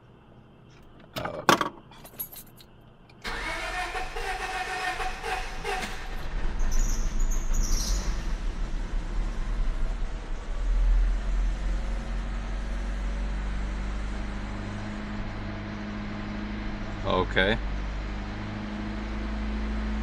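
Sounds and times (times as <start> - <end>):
high squeal: 5.2 - 8.4.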